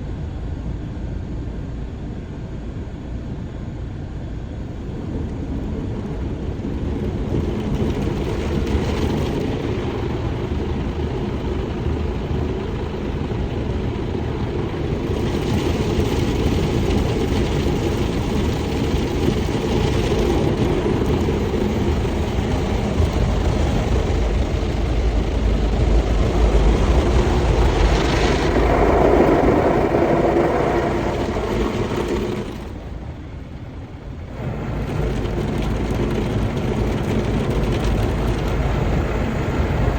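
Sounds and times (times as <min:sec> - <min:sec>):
car wash machinery running: 0:04.4 - 0:39.9.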